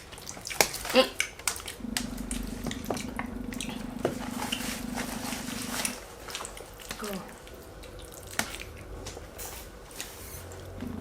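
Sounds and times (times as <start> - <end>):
chewing and slurping: 0.0 - 9.4
steady low hum: 1.8 - 9.2, 9.8 - 11.0.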